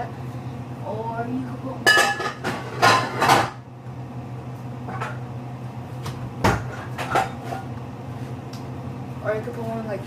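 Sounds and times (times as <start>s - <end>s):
steady low hum: 0.0s - 10.0s
kitchen items knocking and clattering: 1.8s - 3.6s, 6.4s - 7.7s.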